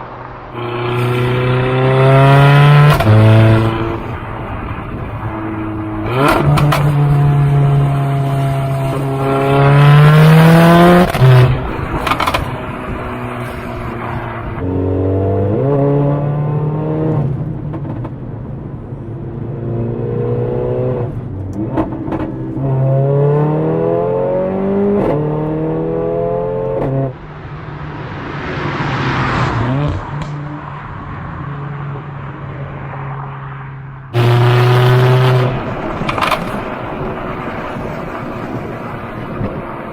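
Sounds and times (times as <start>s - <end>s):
car engine accelerating: 0.0s - 32.0s, 34.1s - 39.9s
exhaust crack: 0.2s - 14.7s, 34.1s - 39.9s
rushing sound: 27.1s - 39.9s.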